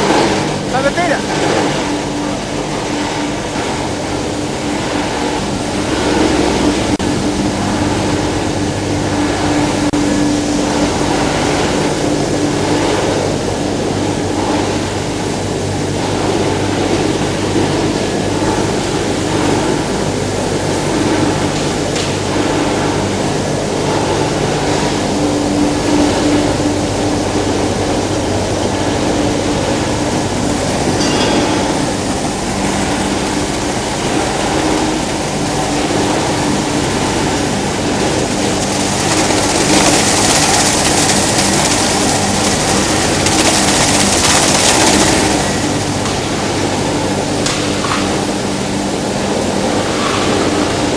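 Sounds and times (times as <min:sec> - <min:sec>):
dense rushing noise: 0:00.0 - 0:16.5
machinery humming: 0:00.0 - 0:50.9.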